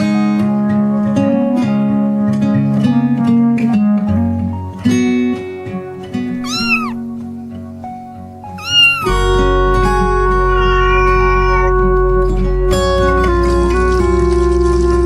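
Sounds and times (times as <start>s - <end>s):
soft background music: 0.0s - 15.0s
cat meowing: 6.4s - 7.0s, 8.4s - 11.9s.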